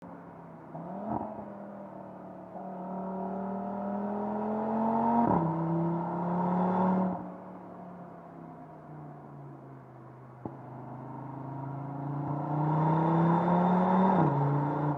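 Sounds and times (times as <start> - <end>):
car engine accelerating: 10.4 - 14.9.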